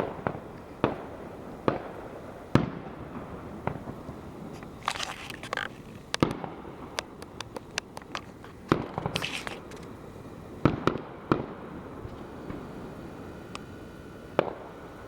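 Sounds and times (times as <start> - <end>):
fireworks bangs and pops: 0.0 - 10.0, 10.6 - 12.7, 14.4 - 14.8
fireworks crackling: 0.0 - 15.0.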